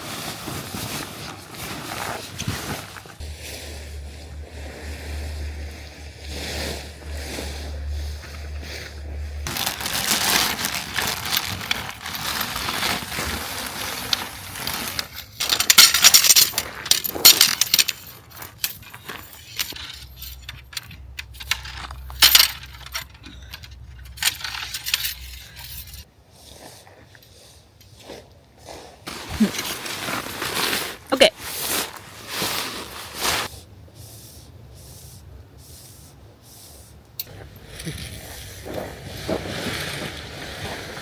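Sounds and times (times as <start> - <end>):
rustling: 0.0 - 41.0
camping gear clattering: 0.2 - 3.3, 8.2 - 26.1, 29.1 - 33.5, 37.2 - 41.0
light metallic clinks and knocks: 15.0 - 26.1.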